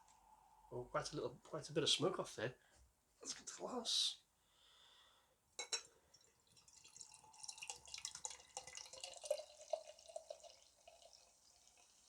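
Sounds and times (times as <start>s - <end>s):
beer pouring into a glass: 6.1s - 12.0s.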